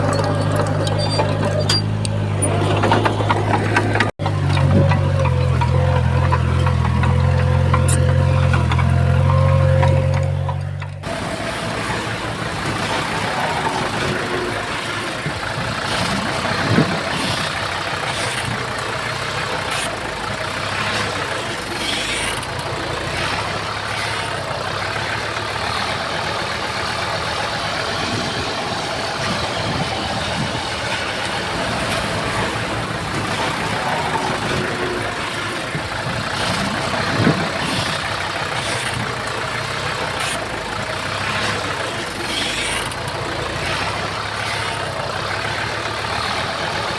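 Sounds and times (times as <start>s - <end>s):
knocks and clanks: 0.0s - 25.6s
heavy diesel engine running: 0.0s - 46.9s.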